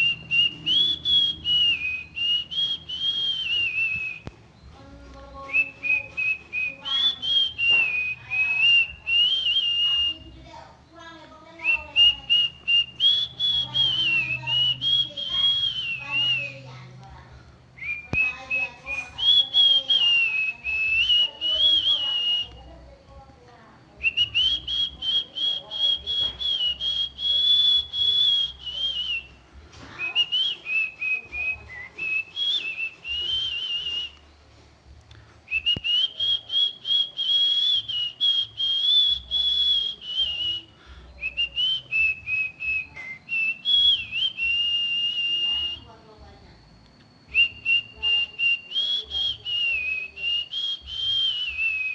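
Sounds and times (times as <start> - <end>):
person whistling birdlike tune: 0.0 - 4.7, 11.6 - 16.6, 17.8 - 22.6, 24.0 - 29.4, 30.0 - 34.3, 35.5 - 45.9, 47.3 - 51.9.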